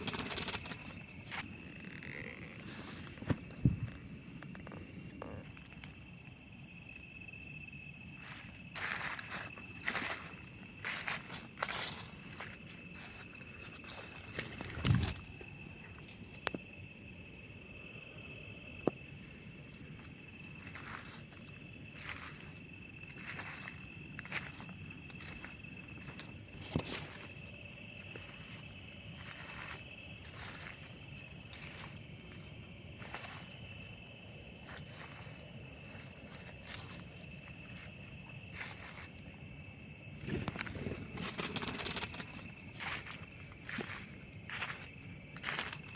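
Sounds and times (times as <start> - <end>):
insects trilling: 0.0 - 45.9
footsteps through vegetation: 8.0 - 16.3, 19.9 - 39.6, 40.3 - 45.9.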